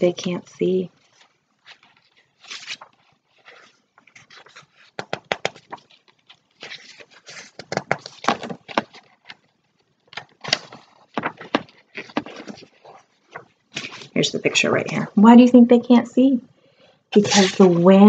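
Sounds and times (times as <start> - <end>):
book pages flipping: 1.0 - 14.5, 17.2 - 18.0
paper clicks: 1.2 - 14.1.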